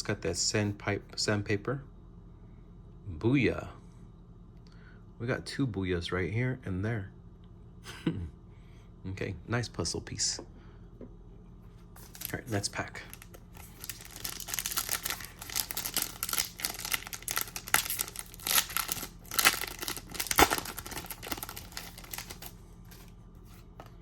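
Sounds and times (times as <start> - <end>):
wrapper tearing and crinkling: 12.0 - 23.1.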